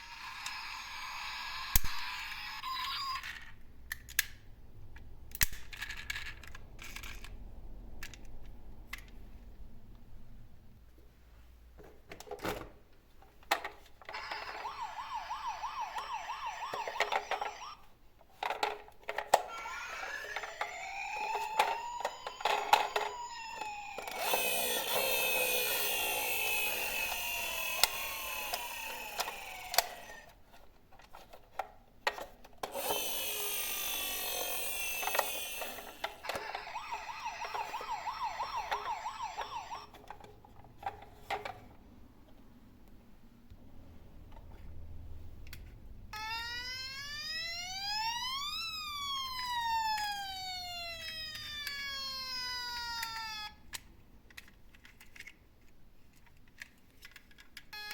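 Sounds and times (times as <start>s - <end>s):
toy electronic sound effects: 0.0s - 3.4s, 14.1s - 17.8s, 19.4s - 30.3s, 32.7s - 40.0s, 46.2s - 53.6s.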